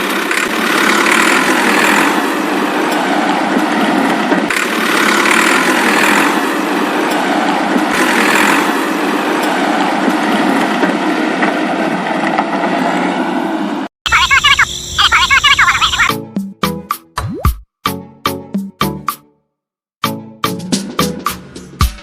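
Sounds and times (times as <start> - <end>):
small motor running: 4.5 - 6.3.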